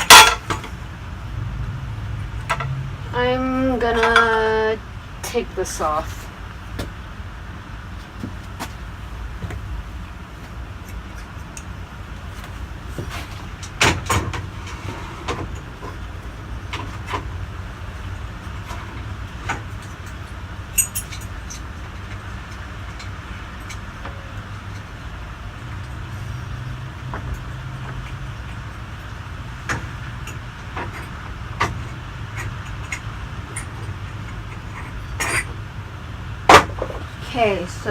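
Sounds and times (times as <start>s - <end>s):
knocks and clicks of fan parts: 0.0s - 0.8s, 2.4s - 2.8s, 6.7s - 7.0s, 9.4s - 9.8s, 10.4s - 16.1s, 29.6s - 35.6s, 36.5s - 37.1s
steady low hum: 0.0s - 37.9s.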